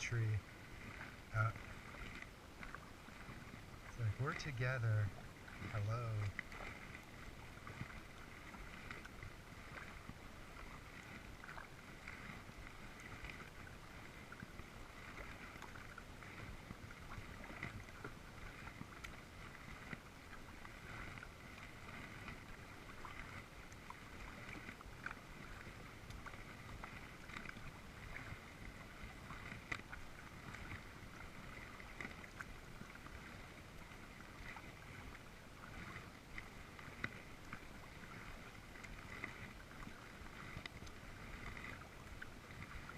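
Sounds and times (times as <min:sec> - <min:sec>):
paddle splashes and drips: 0:00.0 - 0:42.9.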